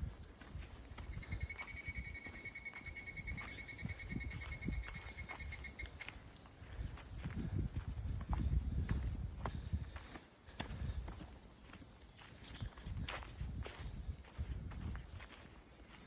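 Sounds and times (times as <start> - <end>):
insects buzzing: 0.0 - 16.0
insect pulsing trill: 1.0 - 6.4.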